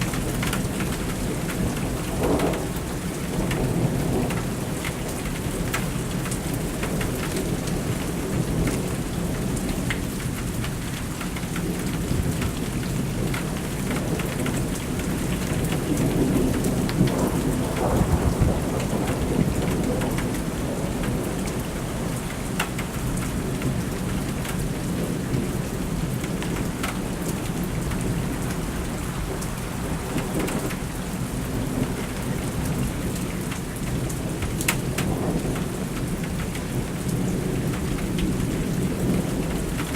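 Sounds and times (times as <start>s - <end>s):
heavy rain falling: 0.0s - 39.9s
thunder rumbling: 11.7s - 22.3s.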